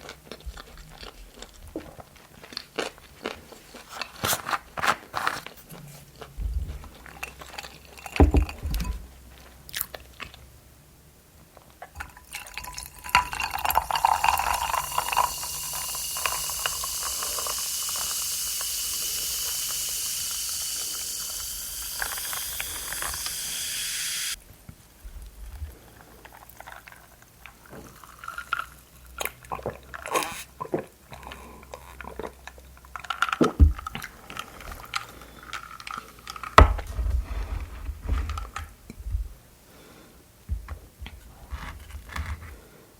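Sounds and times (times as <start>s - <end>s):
person crunching and chewing: 0.0s - 8.2s, 12.3s - 24.4s.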